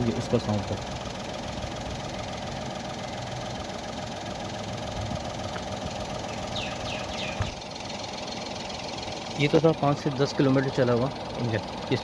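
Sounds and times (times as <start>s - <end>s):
car engine idling: 0.0s - 12.0s
high falling chirps: 6.1s - 9.3s.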